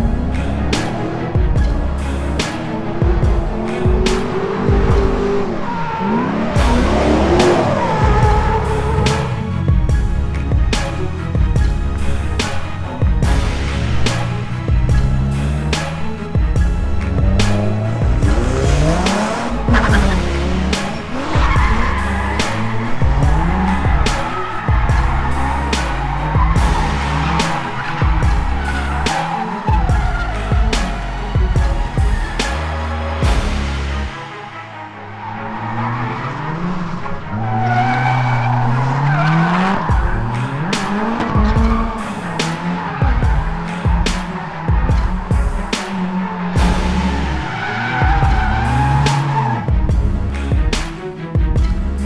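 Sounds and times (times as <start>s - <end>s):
background music with steady beat: 0.0s - 52.0s
car engine revving: 0.0s - 52.0s
tyres squealing: 0.0s - 52.0s
sharp cracks: 12.0s - 34.0s.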